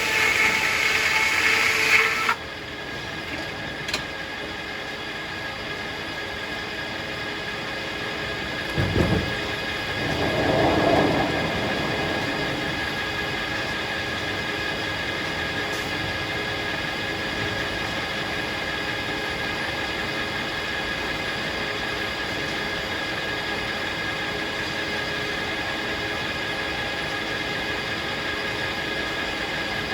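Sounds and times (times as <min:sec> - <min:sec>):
high saw whine: 0:00.0 - 0:02.4
circular sawmill drone: 0:00.0 - 0:29.9.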